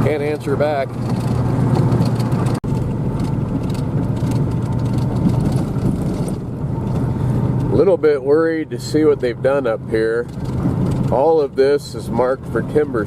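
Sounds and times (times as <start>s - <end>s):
road noise: 0.0s - 13.0s
vehicle engine hum: 0.0s - 13.0s.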